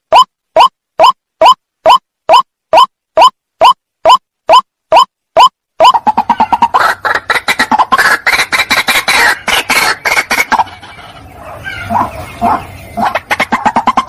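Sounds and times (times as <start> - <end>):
harsh bird calls: 5.8 - 14.0.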